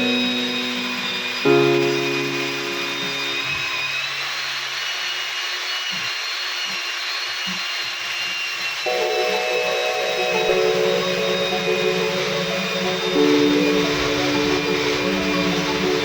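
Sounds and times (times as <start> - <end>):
background music: 0.0 - 3.6, 8.9 - 16.0
power tool motor whine: 0.0 - 16.0.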